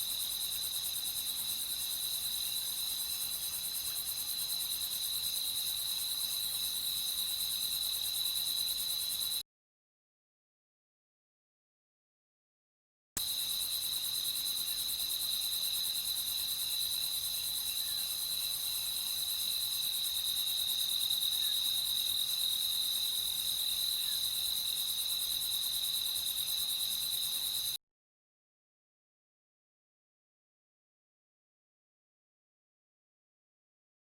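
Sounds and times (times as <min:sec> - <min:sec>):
crickets chirping: 0:00.0 - 0:09.4, 0:13.2 - 0:27.8.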